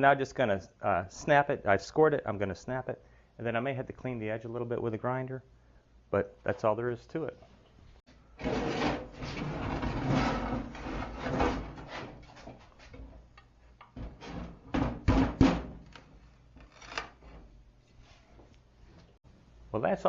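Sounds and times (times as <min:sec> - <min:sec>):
brick scraping and rubbing: 0:08.4 - 0:12.8
sharp knocks: 0:14.7 - 0:15.9.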